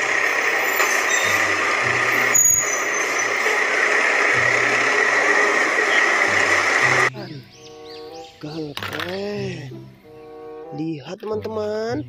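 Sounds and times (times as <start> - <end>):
fire truck engine running: 0.0 - 7.1.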